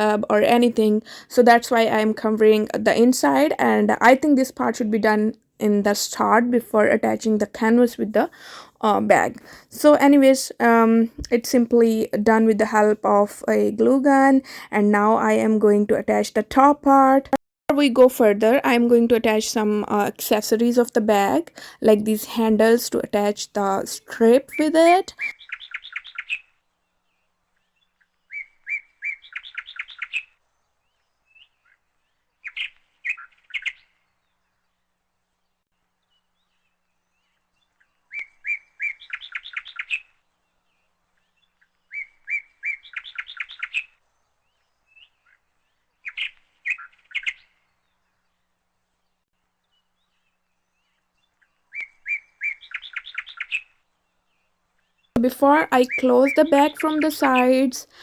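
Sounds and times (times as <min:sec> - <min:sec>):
bird chirping: 0:23.7 - 0:34.4, 0:36.2 - 0:40.2, 0:40.8 - 0:43.9, 0:44.5 - 0:47.8, 0:49.8 - 0:53.8, 0:54.4 - 0:58.0.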